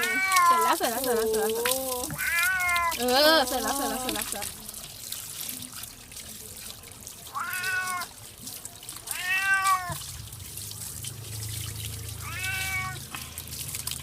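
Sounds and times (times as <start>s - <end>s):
cat meowing: 0.0s - 0.7s, 2.2s - 3.0s, 7.3s - 8.1s, 9.1s - 10.0s, 12.2s - 13.0s.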